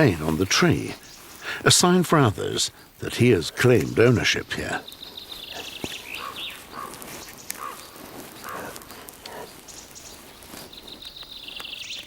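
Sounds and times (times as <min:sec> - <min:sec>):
rustling and crackling: 0:00.0 - 0:12.0
small bird trilling: 0:04.9 - 0:08.6.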